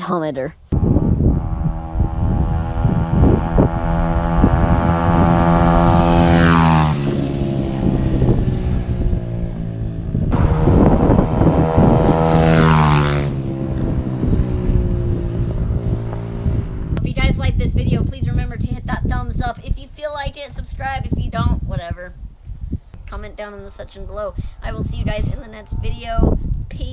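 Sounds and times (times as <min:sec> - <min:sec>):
dirt bike engine revving high: 0:00.8 - 0:17.0.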